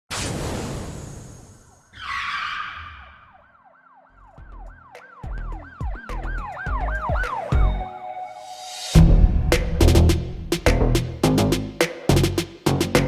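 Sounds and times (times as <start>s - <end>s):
siren-like wail: 1.7s - 9.0s
heavy bass thumps: 9.0s - 13.0s.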